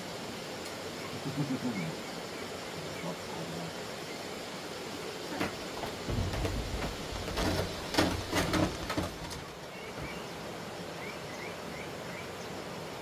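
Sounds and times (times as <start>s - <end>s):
outdoor background noise: 0.0s - 13.0s
knocks and thumps: 5.3s - 10.2s.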